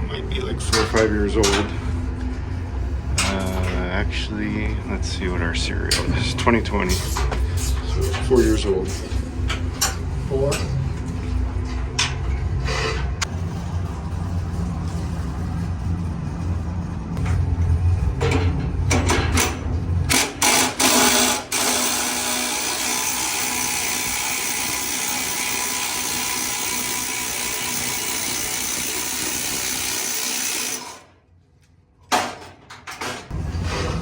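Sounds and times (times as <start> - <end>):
low hum: 0.0 - 20.3
power tool running: 20.1 - 31.2.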